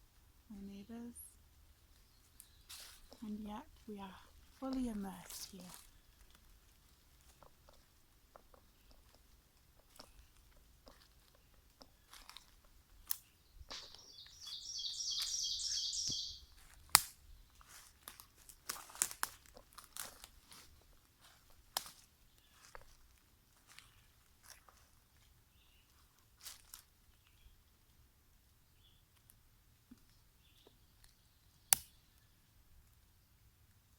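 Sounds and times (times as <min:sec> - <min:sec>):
footsteps crunching on twigs: 0:02.4 - 0:03.3, 0:04.0 - 0:25.0, 0:26.4 - 0:26.9
twig snapping: 0:12.1 - 0:15.4, 0:16.1 - 0:20.7, 0:21.7 - 0:22.1, 0:31.7 - 0:32.0
bird trilling: 0:13.7 - 0:16.6.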